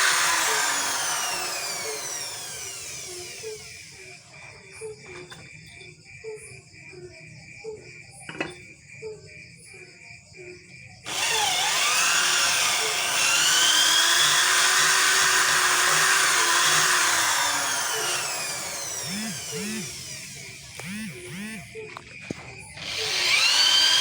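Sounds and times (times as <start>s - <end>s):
power drill whirring: 0.0s - 4.3s, 11.1s - 24.0s.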